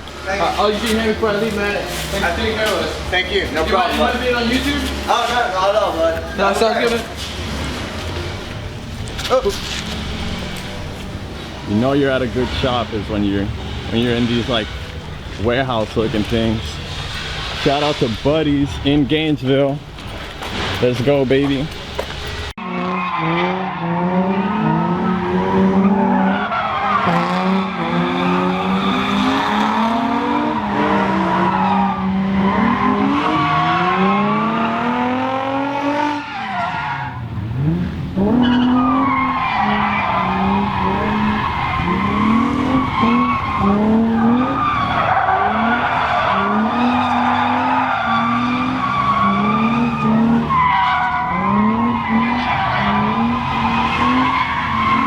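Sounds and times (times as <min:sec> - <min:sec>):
tyres squealing: 0:00.0 - 0:22.4, 0:25.1 - 0:35.0, 0:36.0 - 0:37.3, 0:38.2 - 0:55.0
car engine revving hard: 0:22.6 - 0:55.0.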